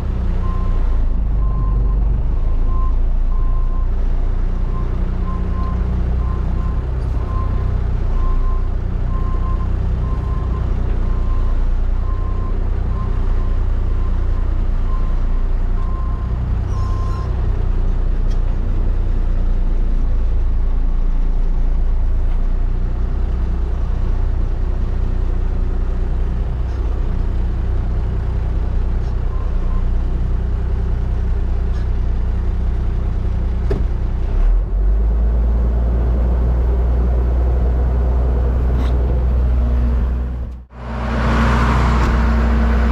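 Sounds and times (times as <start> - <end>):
truck engine running: 36.1 - 42.9.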